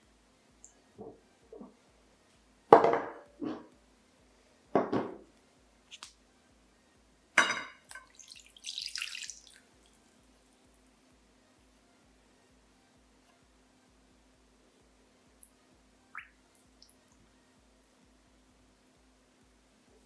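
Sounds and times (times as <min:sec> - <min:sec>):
kitchenware knocking and clinking: 0:02.7 - 0:03.7, 0:04.8 - 0:05.2, 0:07.4 - 0:07.8
water splashing: 0:08.0 - 0:09.6.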